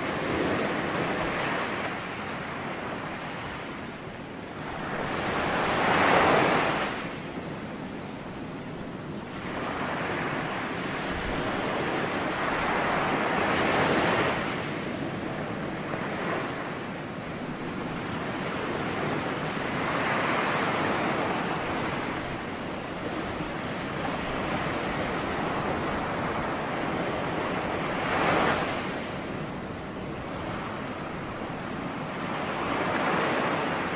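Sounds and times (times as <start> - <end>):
ocean waves breaking: 0.0 - 33.9.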